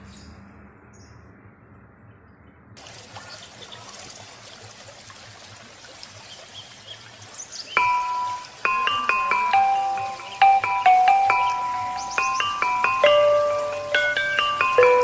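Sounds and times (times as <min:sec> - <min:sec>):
trickling water hiss: 0:02.8 - 0:15.0
glockenspiel chime notes: 0:07.8 - 0:15.0.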